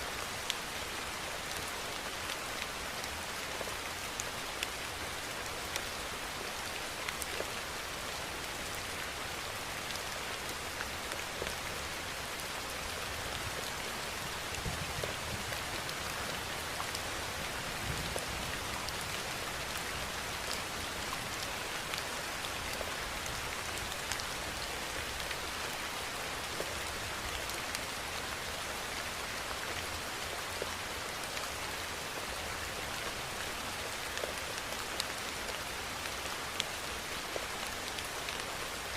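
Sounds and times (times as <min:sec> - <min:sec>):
rain falling: 0:00.0 - 0:38.9
raindrops ticking on a surface: 0:00.1 - 0:38.9.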